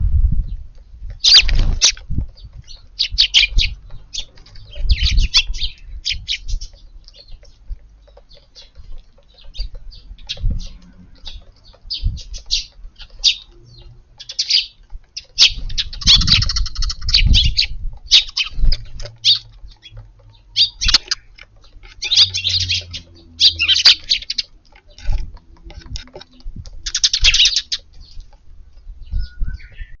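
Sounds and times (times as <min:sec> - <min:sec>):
wind rumbling on microphone: 0:00.0 - 0:30.0
sparrows chirping: 0:00.4 - 0:30.0.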